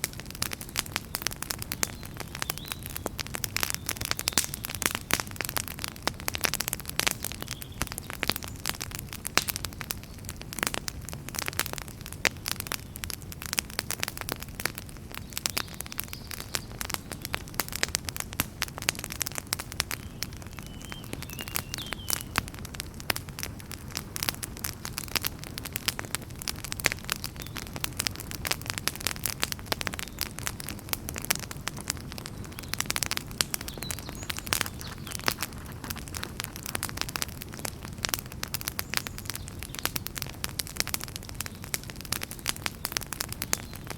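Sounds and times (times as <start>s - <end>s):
wood fire crackling: 0.0s - 43.9s
flames rumbling: 22.1s - 43.9s.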